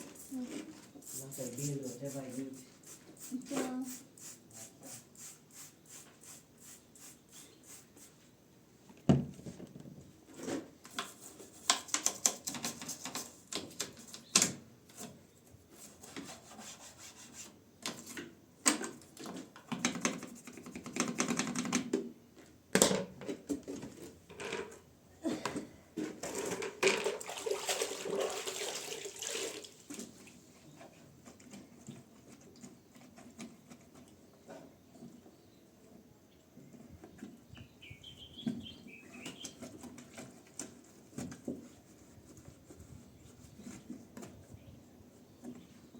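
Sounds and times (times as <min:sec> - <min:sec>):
knocks and clatters of handling: 0:17.8 - 0:24.8, 0:25.4 - 0:27.2
water splashing and running: 0:26.9 - 0:30.1.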